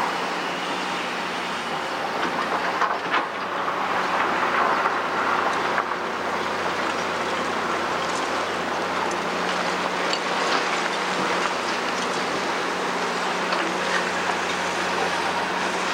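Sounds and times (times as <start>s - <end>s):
excavator diesel engine: 0.0s - 15.9s.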